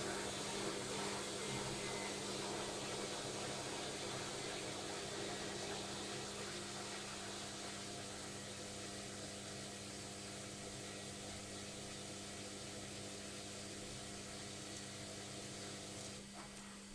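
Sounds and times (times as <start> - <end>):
washing machine spinning: 0.0 - 16.9.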